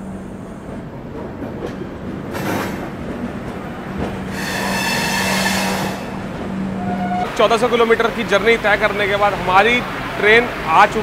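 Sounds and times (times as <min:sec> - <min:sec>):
train rumbling: 0:00.0 - 0:11.0
high metallic brake squeal: 0:04.3 - 0:06.2.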